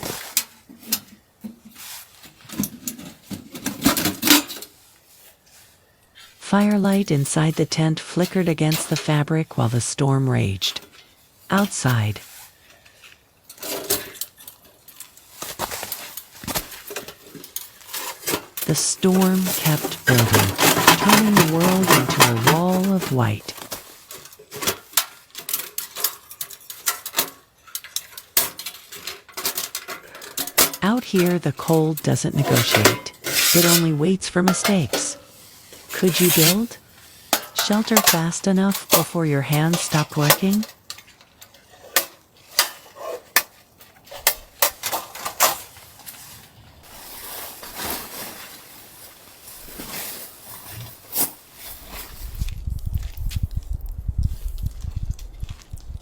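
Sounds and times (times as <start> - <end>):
objects knocking and clattering: 19.2 - 23.1.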